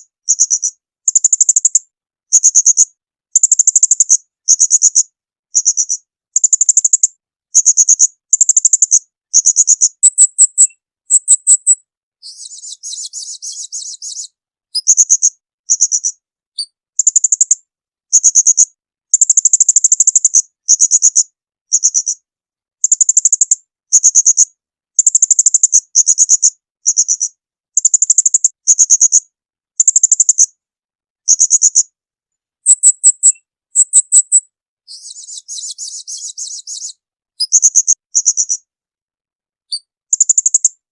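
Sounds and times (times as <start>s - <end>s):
songbird chattering calls: 3.4s - 16.1s, 25.0s - 29.2s, 32.6s - 38.6s
rough buzzing bird trill: 32.7s - 38.6s.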